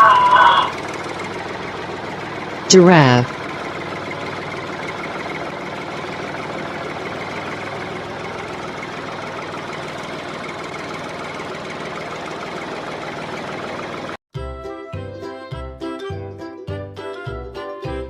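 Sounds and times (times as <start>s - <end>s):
tractor engine chugging: 0.0s - 14.2s.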